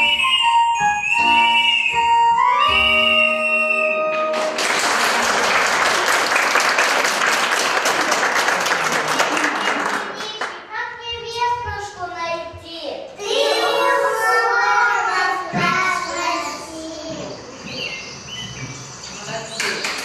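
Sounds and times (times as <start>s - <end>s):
audience applauding: 4.3s - 10.6s
child singing: 13.2s - 17.3s.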